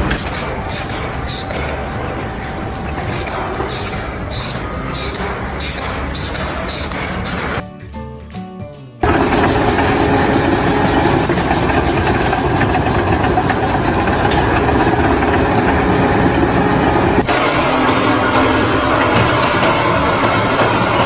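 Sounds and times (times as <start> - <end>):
loud engine running: 9.0 - 21.0.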